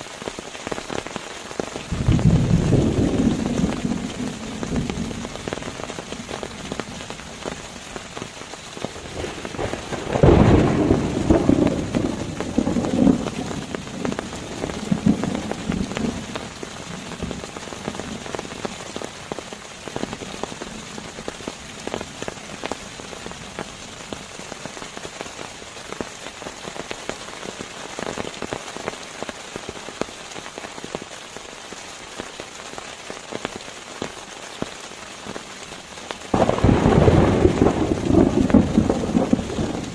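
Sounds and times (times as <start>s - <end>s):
steady rain: 0.0s - 39.9s
thunder rumble: 1.9s - 7.4s, 8.8s - 18.6s, 36.3s - 39.9s.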